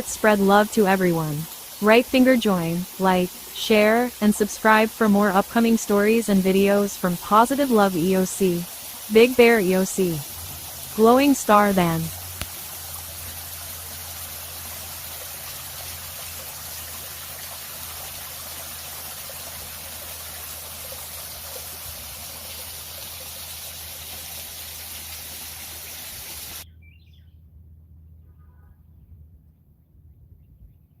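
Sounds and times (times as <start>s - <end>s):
running water rushing: 0.0s - 26.6s
faint bird chirps: 26.6s - 27.4s.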